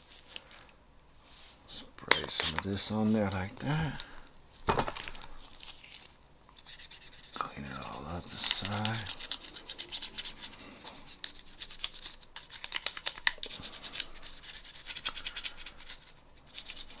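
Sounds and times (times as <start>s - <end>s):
scratchy scrubbing strokes: 6.6s - 12.6s.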